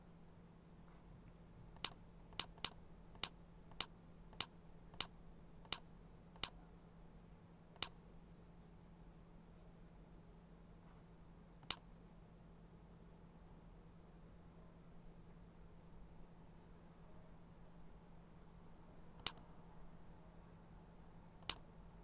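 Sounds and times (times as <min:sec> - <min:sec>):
computer mouse clicks: 0:01.8 - 0:06.6, 0:11.6 - 0:11.8, 0:19.2 - 0:19.4, 0:21.4 - 0:21.6.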